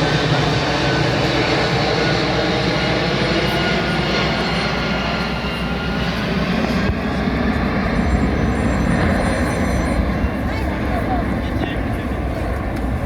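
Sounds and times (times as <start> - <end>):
aircraft engines droning overhead: 0.0 - 13.0.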